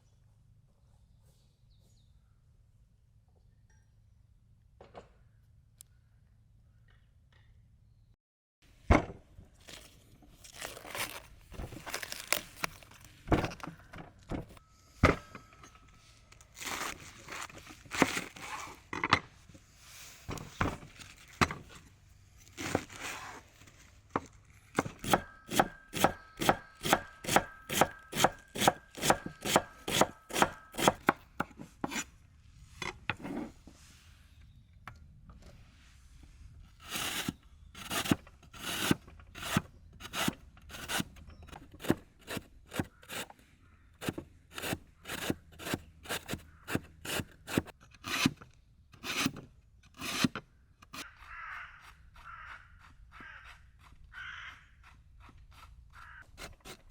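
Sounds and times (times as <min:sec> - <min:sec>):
knife chopping on cutting board: 0:24.8 - 0:32.0.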